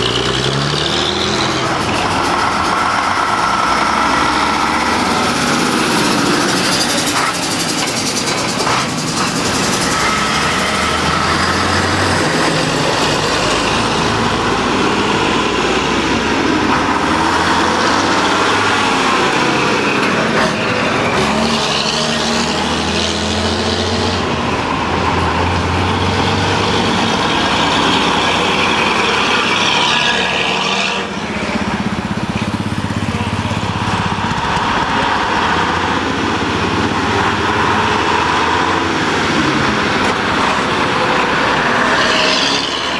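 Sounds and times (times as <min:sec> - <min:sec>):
trucks driving past: 0:00.0 - 0:42.9.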